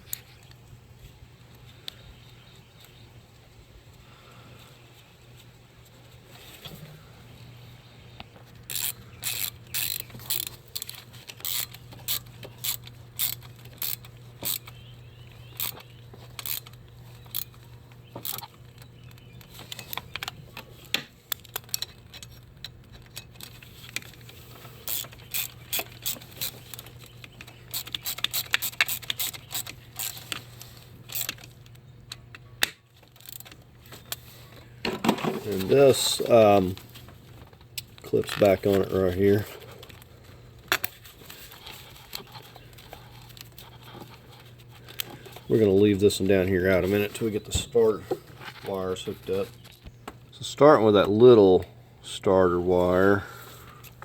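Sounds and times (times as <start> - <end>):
hand ratchet clicking: 8.6 - 14.8, 15.4 - 20.4, 24.8 - 31.5, 33.1 - 33.5.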